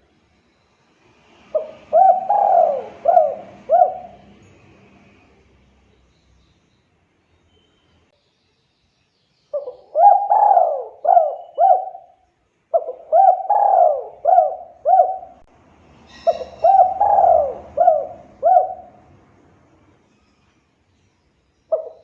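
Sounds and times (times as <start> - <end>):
dove cooing: 1.5 - 4.5, 9.6 - 15.5, 16.1 - 19.1, 21.7 - 22.0.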